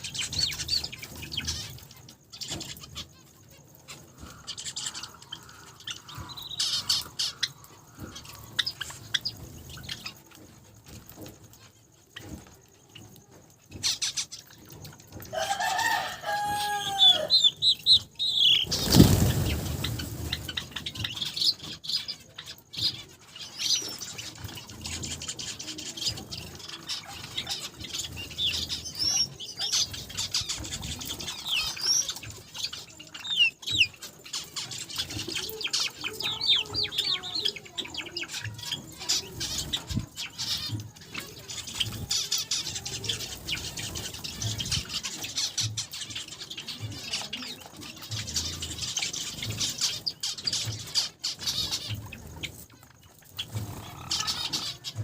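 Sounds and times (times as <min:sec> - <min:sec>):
finches chirping: 0:00.0 - 0:14.8, 0:15.9 - 0:55.0
wings fluttering: 0:18.3 - 0:22.1.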